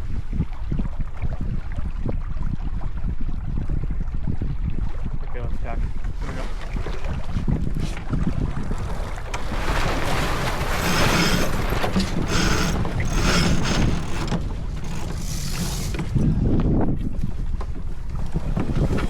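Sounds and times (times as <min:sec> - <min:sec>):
wind buffeting microphone: 0:00.0 - 0:19.0
water rushing along hull: 0:00.4 - 0:19.0.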